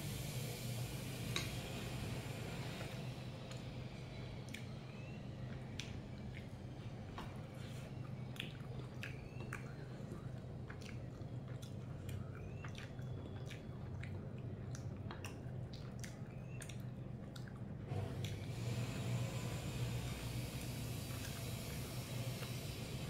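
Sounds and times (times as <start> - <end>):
wet mouth clicks and smacks: 4.4 - 6.6, 8.1 - 18.4
person chewing food: 5.4 - 18.4.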